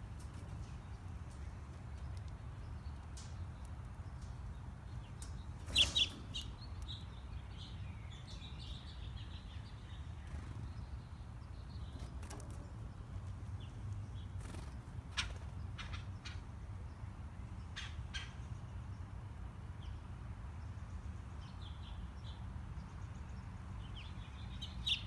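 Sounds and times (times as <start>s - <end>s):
faint high bird chirps: 5.2s - 10.9s.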